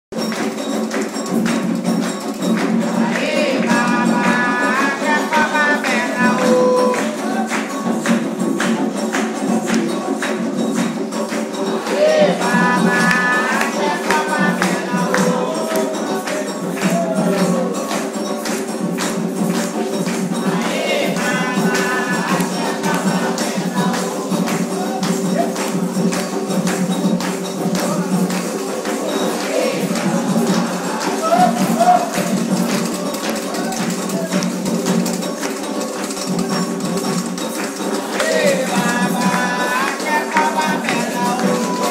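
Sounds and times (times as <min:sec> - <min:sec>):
rhythmic percussion: 0:00.1 - 0:41.9
voices singing: 0:00.2 - 0:41.9.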